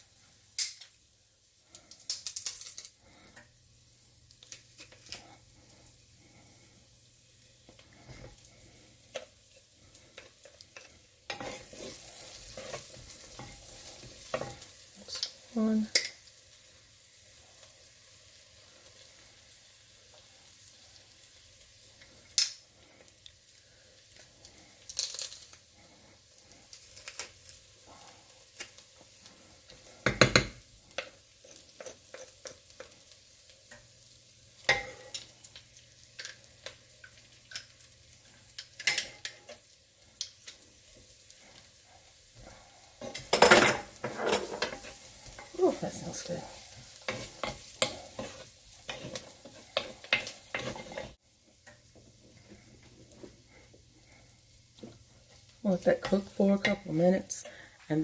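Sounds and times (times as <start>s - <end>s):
onions sizzling in oil: 0.0s - 58.0s
spoon scraping and knocking pot: 10.2s - 14.7s, 30.0s - 31.1s, 43.0s - 45.5s, 47.1s - 53.3s.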